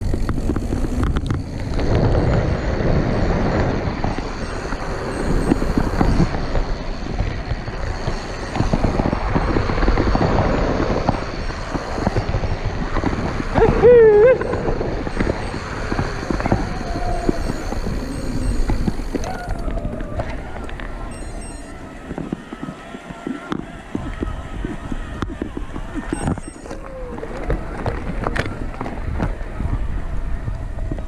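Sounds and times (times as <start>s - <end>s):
bike tyre and frame rattle: 0.0s - 31.0s
wind rush: 0.0s - 31.0s
wavering pitched call: 4.2s - 6.3s, 13.6s - 22.6s, 26.0s - 27.4s.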